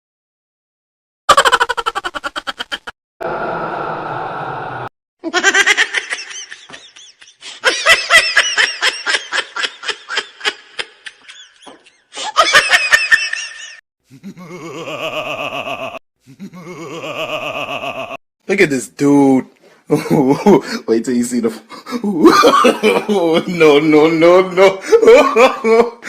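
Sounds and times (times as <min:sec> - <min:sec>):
laughing sound effects: 0:01.3 - 0:02.9, 0:11.7 - 0:18.2
rapid high-pitched cackle: 0:01.3 - 0:02.9.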